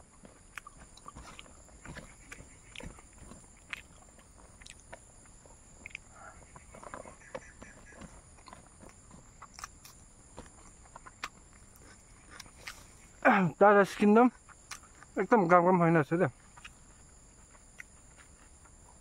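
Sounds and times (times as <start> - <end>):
person chewing food: 0.0 - 13.2, 14.3 - 15.2, 16.4 - 19.0
mouth clicks: 5.8 - 6.2, 14.4 - 15.6.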